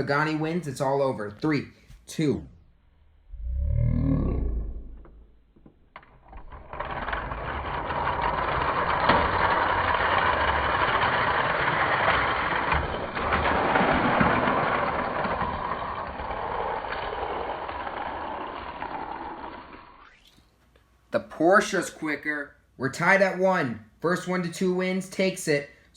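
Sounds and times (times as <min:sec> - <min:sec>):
toy cars rolling on plastic track: 0:05.9 - 0:20.4.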